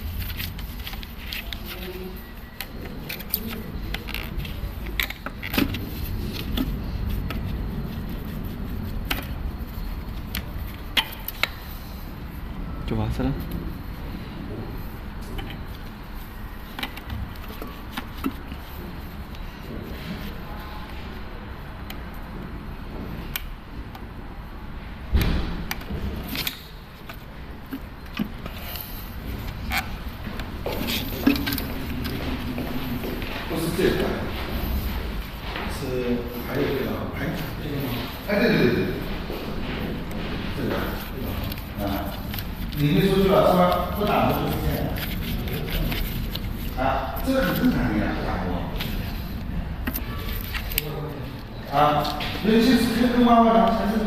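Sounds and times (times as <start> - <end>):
heavy thump: 25.1 - 26.2.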